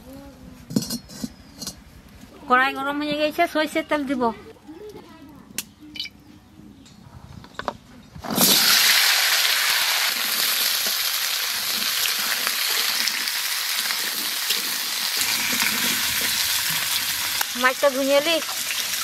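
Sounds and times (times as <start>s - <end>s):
radish sizzling in hot oil: 8.3s - 19.0s.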